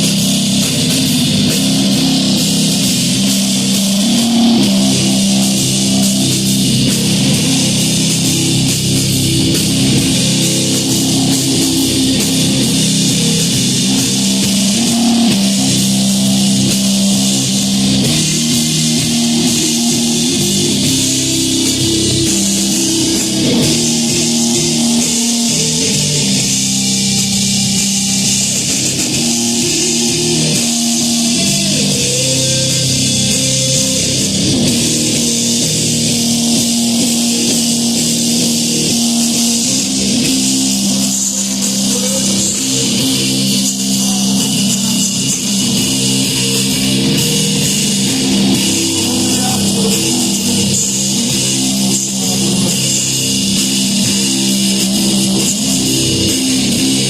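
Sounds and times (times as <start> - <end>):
drum kit with cymbals: 0.0 - 57.0
electric guitars: 0.0 - 57.0.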